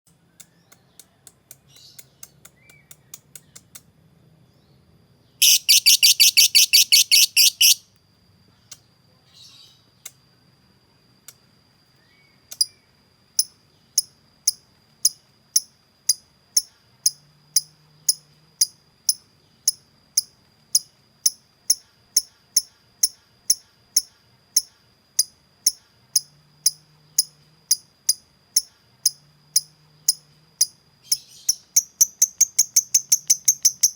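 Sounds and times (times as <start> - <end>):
lovebird chirping and trilling: 5.4 - 7.8, 31.0 - 33.9.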